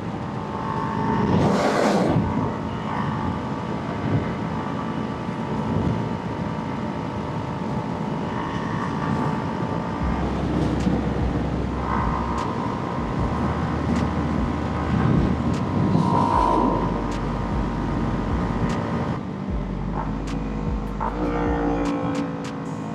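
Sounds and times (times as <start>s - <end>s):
wind noise on microphone: 0.0s - 22.9s
motorcycle engine running: 8.4s - 22.9s.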